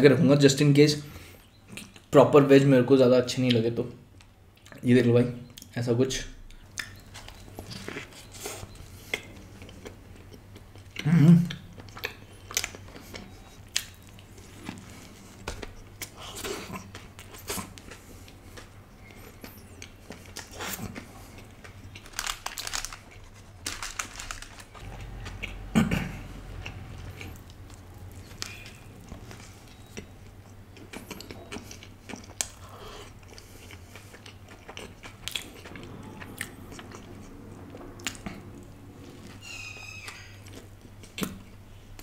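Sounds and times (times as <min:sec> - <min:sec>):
small crunches and crackles: 0:11.8 - 0:25.7
chewing and biting burger: 0:26.4 - 0:37.4.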